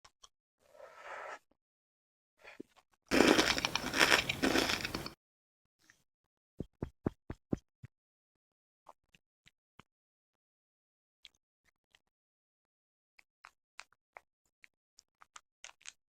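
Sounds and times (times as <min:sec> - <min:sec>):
loud crackling and scraping: 0:03.1 - 0:05.2.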